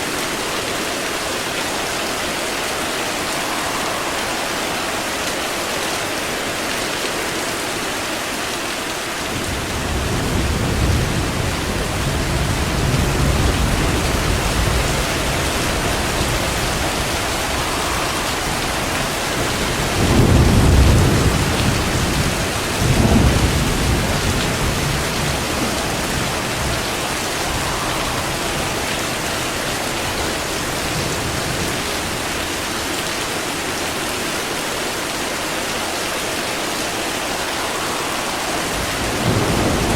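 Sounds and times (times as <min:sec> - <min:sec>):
heavy rain: 0:00.0 - 0:39.9
rolling thunder: 0:09.3 - 0:32.3, 0:37.1 - 0:39.9.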